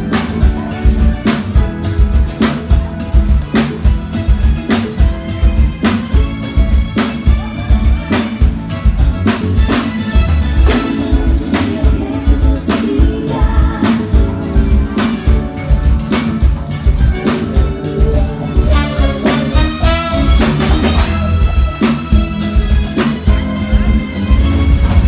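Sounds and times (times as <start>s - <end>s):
bass: 0.0s - 25.0s
drum kit beat: 0.0s - 25.0s
person singing: 10.6s - 15.4s.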